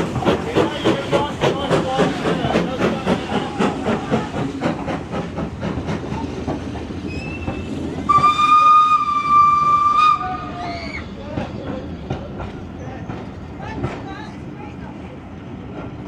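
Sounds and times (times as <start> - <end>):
steam train running: 0.0 - 16.0
steam train whistle: 7.1 - 11.0.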